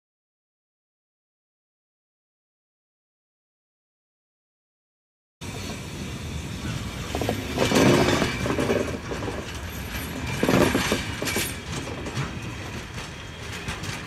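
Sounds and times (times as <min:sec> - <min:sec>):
train clanks and rattles: 0:05.4 - 0:14.0
train rumbling on track: 0:05.4 - 0:14.0.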